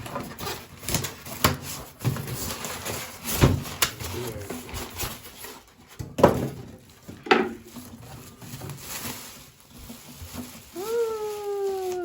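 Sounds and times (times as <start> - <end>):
hard objects knocking: 6.0 - 7.6
shuffling: 8.0 - 12.0.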